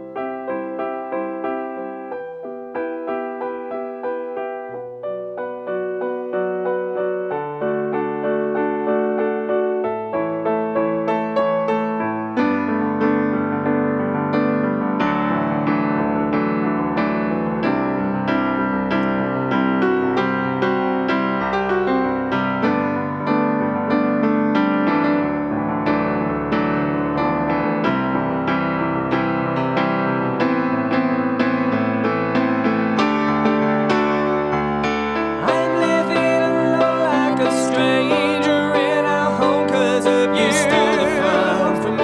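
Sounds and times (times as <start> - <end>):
instrumental piano music: 0.0 - 42.0.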